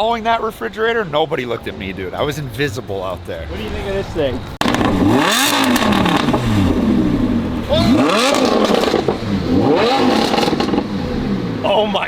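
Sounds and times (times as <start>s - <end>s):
sports car engine revving: 4.6s - 12.0s.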